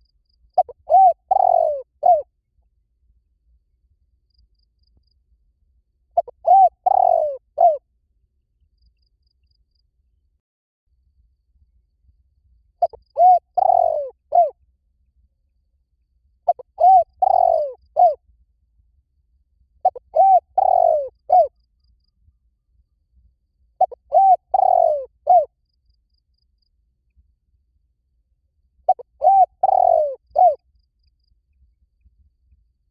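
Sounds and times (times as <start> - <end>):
dove cooing: 0.6 - 2.3, 6.2 - 7.8, 12.8 - 14.5, 16.5 - 18.2, 19.8 - 21.5, 23.8 - 25.5, 28.9 - 30.6.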